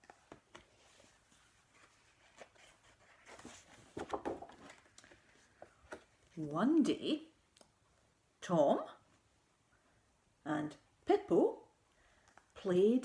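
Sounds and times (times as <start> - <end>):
book pages rustling: 0.0 - 6.5.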